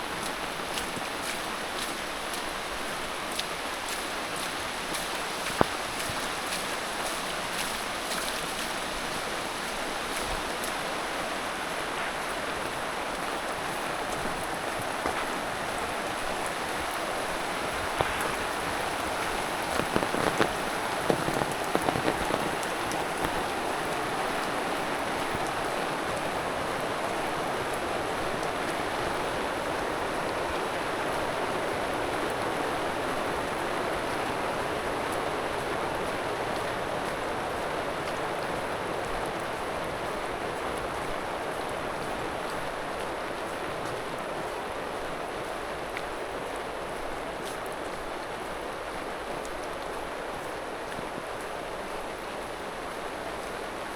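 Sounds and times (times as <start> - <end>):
steady rain falling: 0.0 - 53.9
loud rain taps: 16.4 - 26.6.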